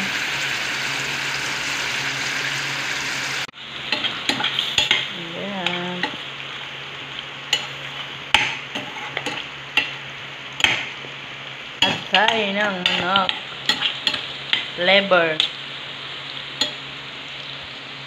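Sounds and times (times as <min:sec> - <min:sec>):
food sizzling in oil: 0:00.0 - 0:18.0
metal spatula scraping a pot: 0:07.6 - 0:10.0.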